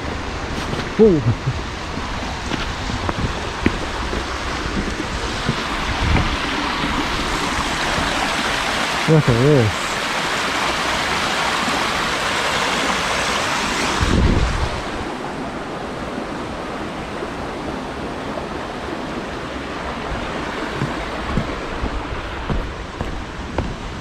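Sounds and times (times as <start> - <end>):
wind buffeting microphone: 0.0 - 8.6, 14.0 - 15.2, 20.0 - 24.0
rush of falling water: 0.0 - 24.0.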